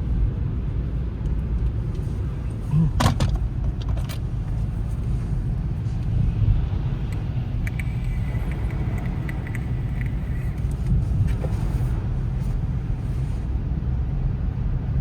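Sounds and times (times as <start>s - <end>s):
strong wind buffeting microphone: 4.2s - 14.2s.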